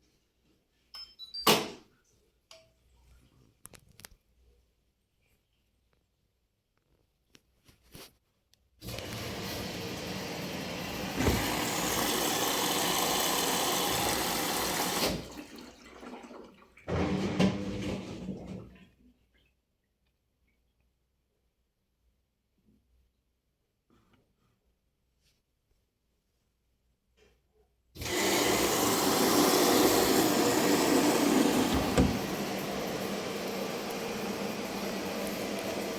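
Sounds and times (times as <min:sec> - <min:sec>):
washing machine water rushing: 0:08.8 - 0:18.8, 0:28.0 - 0:35.9.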